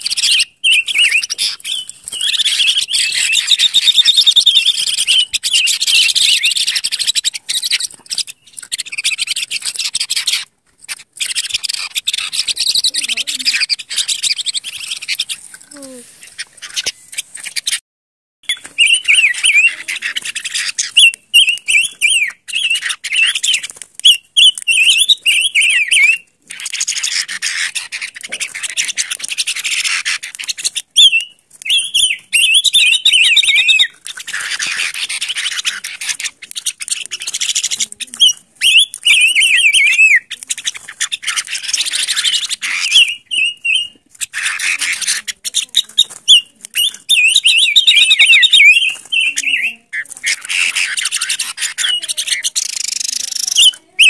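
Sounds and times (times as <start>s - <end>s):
bird calling in wavering phrases: 0.0s - 17.8s, 18.5s - 54.0s.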